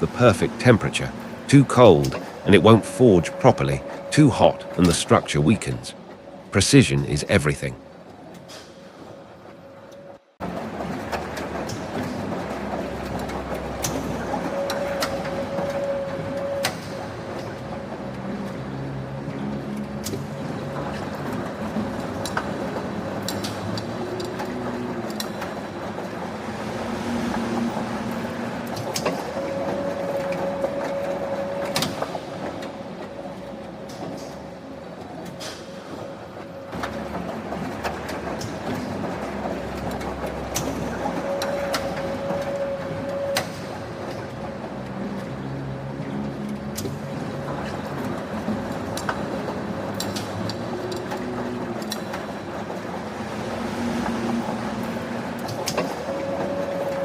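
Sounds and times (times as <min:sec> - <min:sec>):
held machine tone: 0:00.0 - 0:06.0
factory machinery humming: 0:00.0 - 0:57.0.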